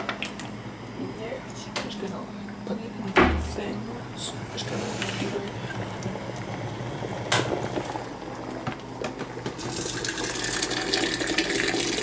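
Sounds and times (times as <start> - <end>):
tap water running into carafe: 9.2 - 12.0.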